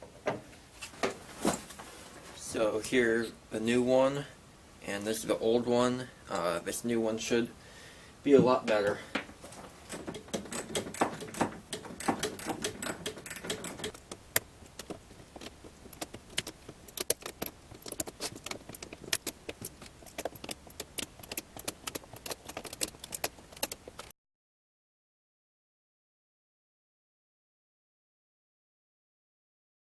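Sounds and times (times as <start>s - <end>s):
metal parts and tools clinking: 8.8s - 14.0s.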